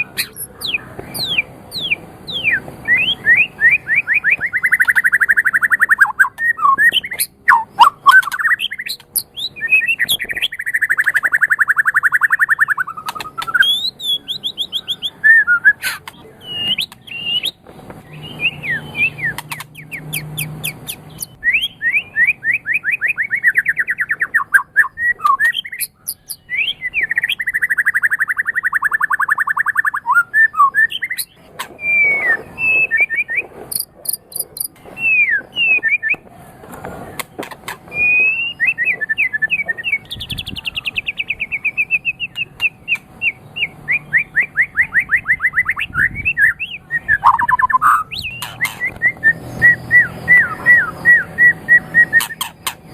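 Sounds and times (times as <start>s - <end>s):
bird singing trills and whistles: 0.0s - 36.3s, 37.9s - 52.9s
sharp bird clicks: 4.1s - 14.9s, 15.8s - 21.4s, 23.5s - 26.4s, 30.9s - 34.8s, 47.2s - 49.1s, 52.1s - 52.9s.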